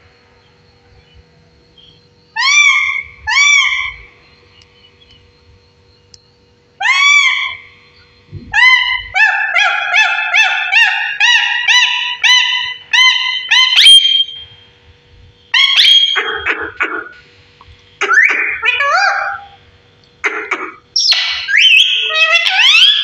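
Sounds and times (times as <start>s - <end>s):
parrot squawk: 2.4s - 4.0s, 6.8s - 7.6s, 8.5s - 14.4s, 15.5s - 17.2s, 18.0s - 19.6s, 20.2s - 23.0s
parrot calling loudly: 2.4s - 4.1s, 6.8s - 7.7s, 8.5s - 14.4s, 15.5s - 17.2s, 18.0s - 19.6s, 20.2s - 23.0s.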